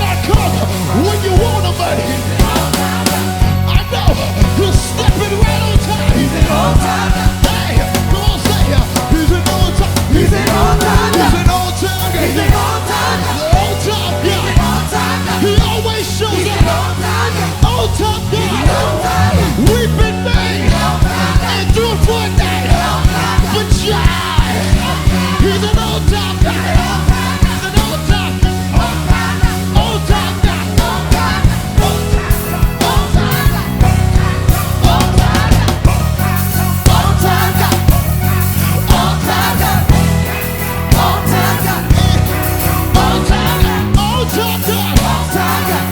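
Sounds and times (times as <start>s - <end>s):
drum beat: 0.0s - 45.9s
live band playing: 0.0s - 45.9s
people singing or shouting: 0.0s - 45.9s.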